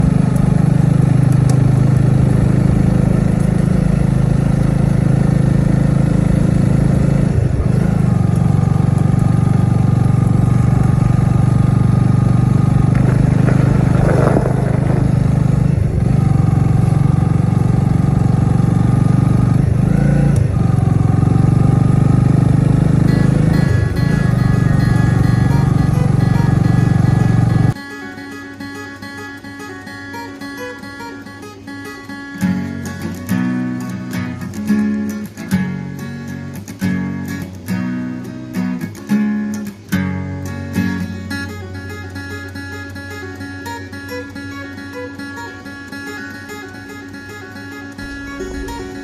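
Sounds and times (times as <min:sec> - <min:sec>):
vehicle engine running: 0:00.0 - 0:27.8, 0:46.8 - 0:49.0.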